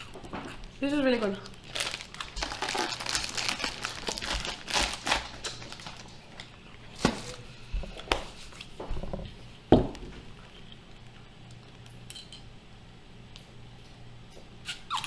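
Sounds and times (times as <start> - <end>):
snack packaging crinkling: 1.3 - 7.4.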